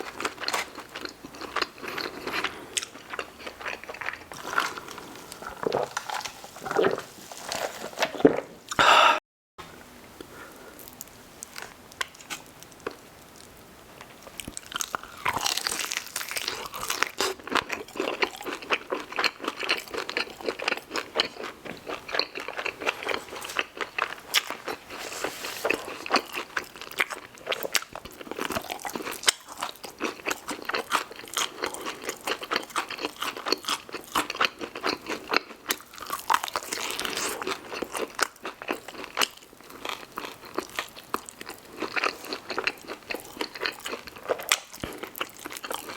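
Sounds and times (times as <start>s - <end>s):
crunching and chewing food: 0.0s - 8.8s, 10.8s - 45.9s.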